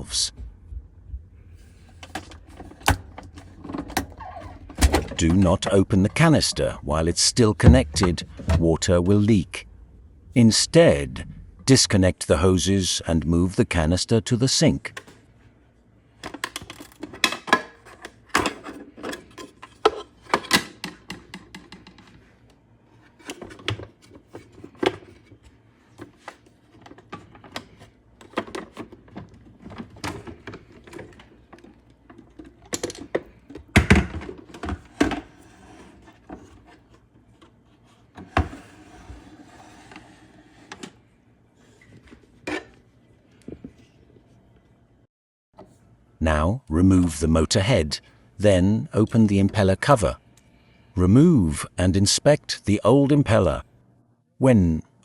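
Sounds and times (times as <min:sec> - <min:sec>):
plastic clicks and clatter: 0:23.2 - 0:35.3.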